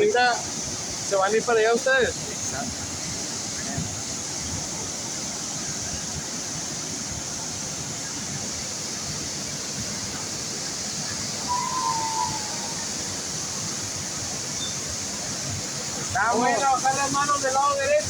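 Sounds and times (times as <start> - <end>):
waterfall roar: 0.0 - 18.0
brief high tone: 11.5 - 12.9.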